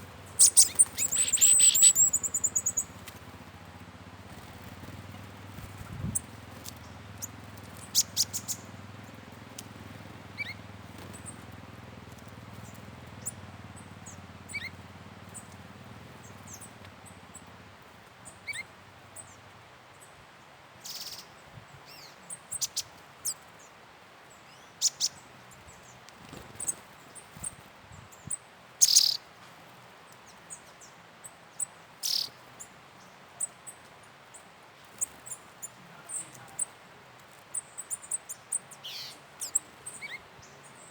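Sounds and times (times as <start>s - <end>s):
birds chirping and calling: 0.0s - 3.6s, 4.2s - 17.6s, 18.2s - 19.4s, 24.5s - 29.2s, 31.6s - 32.4s, 33.0s - 36.8s, 37.5s - 40.9s.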